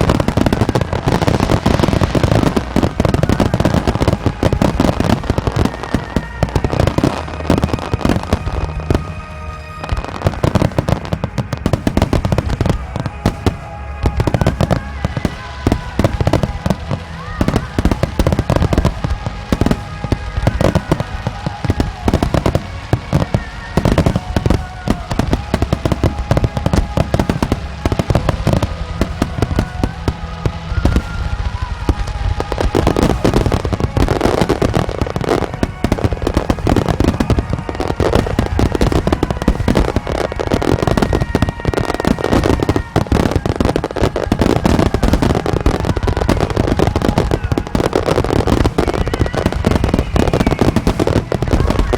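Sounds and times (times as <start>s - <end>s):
fireworks bursting: 0.0s - 51.9s
music playing: 0.0s - 51.9s.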